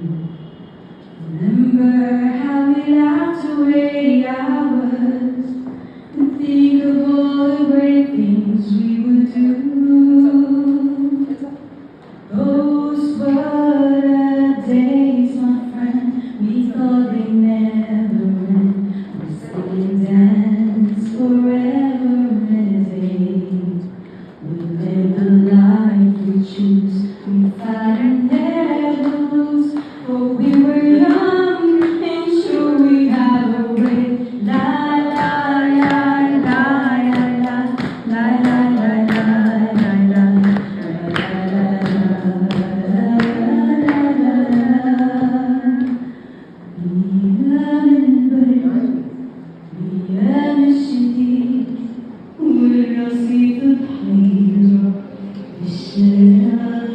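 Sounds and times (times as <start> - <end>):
woman singing unaccompanied: 1.2 - 11.7, 12.3 - 56.9.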